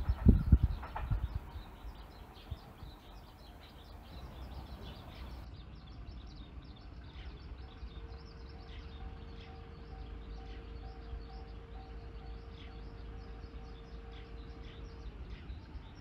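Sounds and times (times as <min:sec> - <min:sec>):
low outdoor rumble: 0:00.0 - 0:16.0
small birds chirping: 0:00.0 - 0:16.0
faint steady tone: 0:07.4 - 0:16.0.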